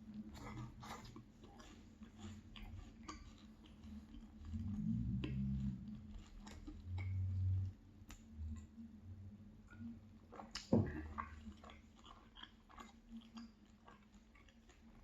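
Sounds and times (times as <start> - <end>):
chewing pastry with mouth clicks: 0.0 - 15.0.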